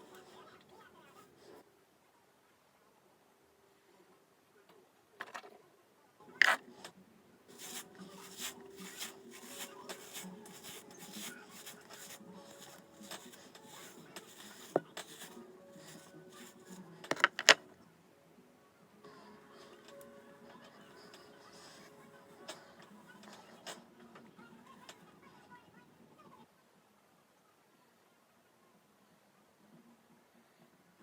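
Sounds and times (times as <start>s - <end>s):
hair being brushed: 7.5s - 16.8s.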